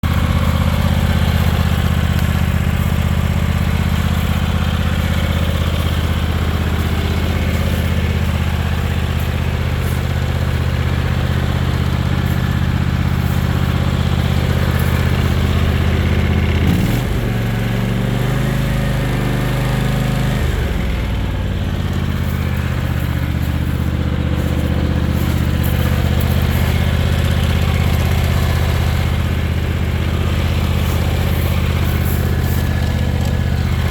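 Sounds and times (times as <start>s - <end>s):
lawn tractor engine running: 0.0s - 33.9s.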